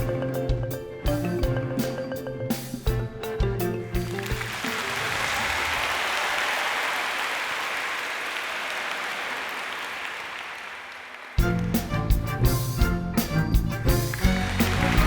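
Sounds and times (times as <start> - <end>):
music: 0.0 - 6.1, 11.4 - 15.0
audience applauding: 4.0 - 11.7, 14.0 - 15.0.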